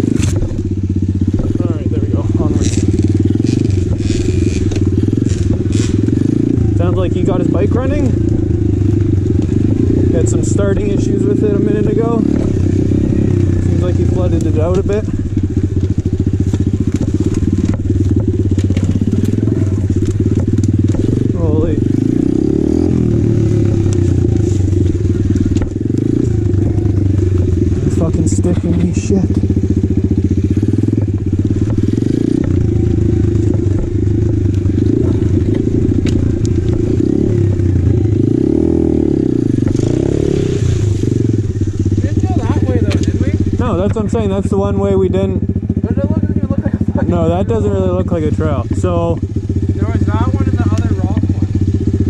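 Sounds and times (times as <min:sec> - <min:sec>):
dirt bike engine idling: 0:00.0 - 0:52.0
clicks and knocks from bike: 0:15.7 - 0:21.3, 0:33.4 - 0:37.7.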